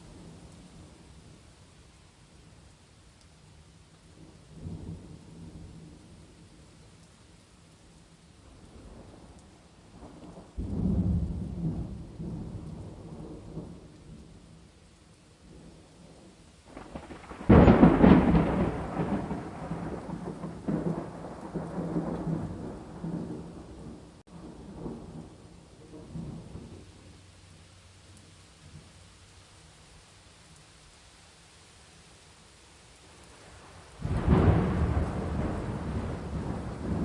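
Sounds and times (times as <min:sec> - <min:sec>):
steady rain: 0:00.0 - 0:37.0
thunder rumbling: 0:08.4 - 0:14.4, 0:15.4 - 0:27.2, 0:33.3 - 0:37.0.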